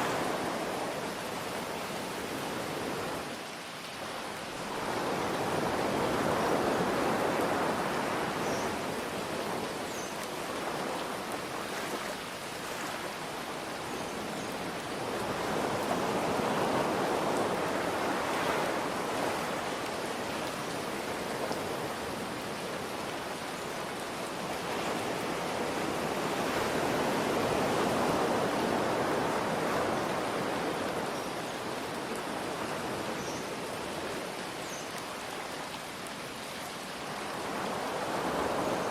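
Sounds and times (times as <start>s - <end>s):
rain hiss: 0.0s - 38.9s
ocean waves washing in: 37.1s - 38.9s.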